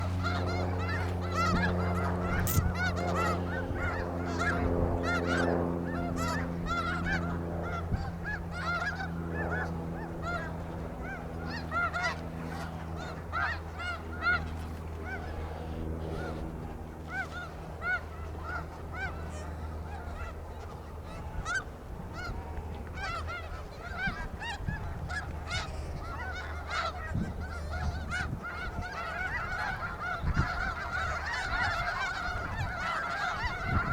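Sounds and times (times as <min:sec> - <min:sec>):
geese honking: 0:25.1 - 0:33.9.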